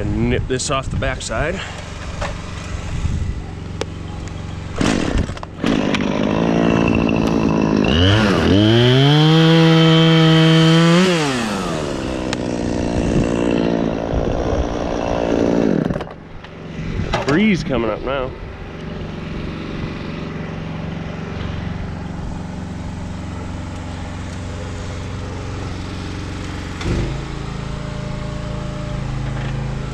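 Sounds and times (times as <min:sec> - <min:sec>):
chainsaw idling and revving: 0:04.5 - 0:16.8, 0:18.6 - 0:28.2.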